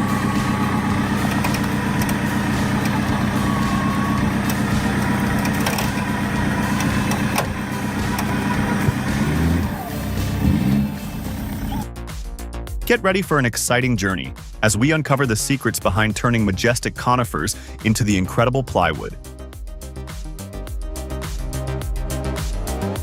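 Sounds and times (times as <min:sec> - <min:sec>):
large engine revving: 0:00.0 - 0:11.9.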